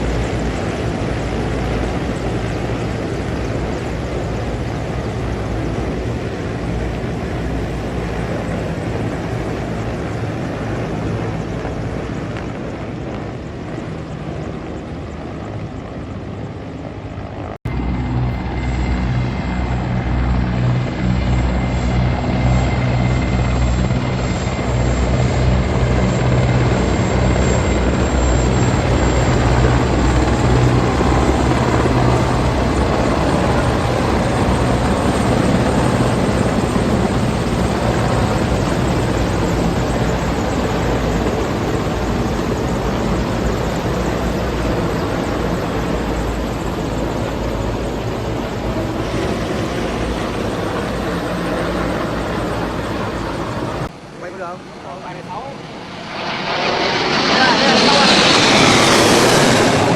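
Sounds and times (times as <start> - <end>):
helicopter rotor drone: 0.0 - 59.9.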